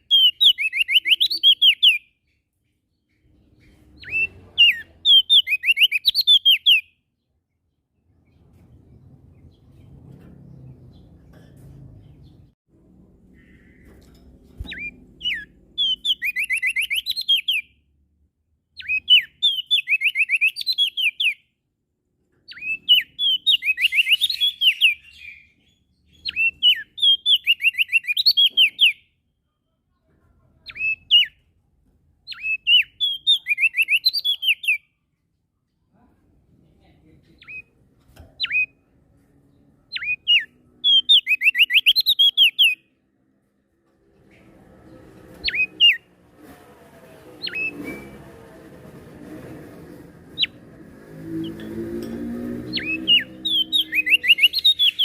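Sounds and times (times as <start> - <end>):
bird singing high trilled phrases: 0.0 - 2.2, 4.0 - 7.0, 14.6 - 17.8, 18.8 - 21.4, 22.5 - 29.1, 32.3 - 34.8, 39.9 - 42.8, 52.8 - 55.0.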